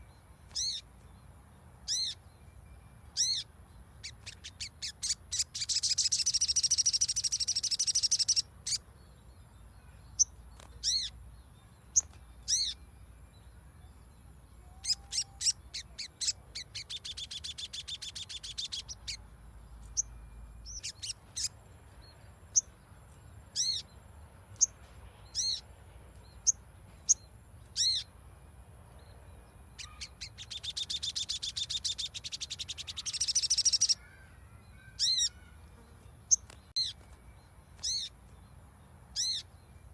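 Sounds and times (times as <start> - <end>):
bird trilling: 0.5 - 0.8, 1.9 - 2.2, 3.2 - 8.8, 10.8 - 11.1, 12.0 - 12.8, 14.6 - 19.2, 23.6 - 23.9, 27.8 - 28.1, 29.8 - 35.6, 37.8 - 38.2, 39.1 - 39.5.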